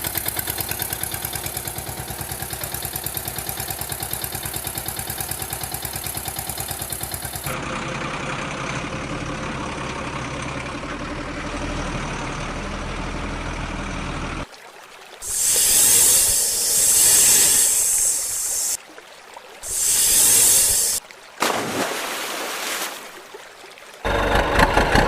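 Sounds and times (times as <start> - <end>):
diesel engine chugging: 0.0 - 14.4, 24.1 - 25.0
steady engine sound: 0.0 - 14.4, 15.2 - 18.8, 19.6 - 21.0, 24.1 - 25.0.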